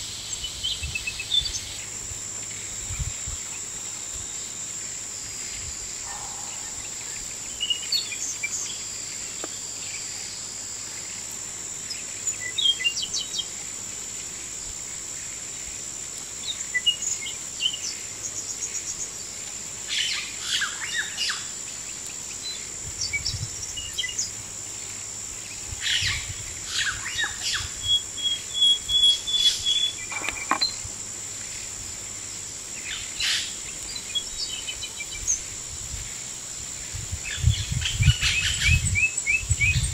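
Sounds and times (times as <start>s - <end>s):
high-pitched insect drone: 0.0s - 39.9s
birds chirping and calling: 25.9s - 30.8s.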